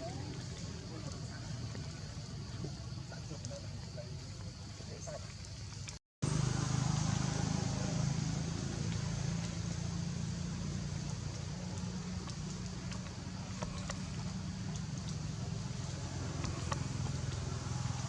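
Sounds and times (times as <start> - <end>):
vehicle engine running: 6.2 - 18.0.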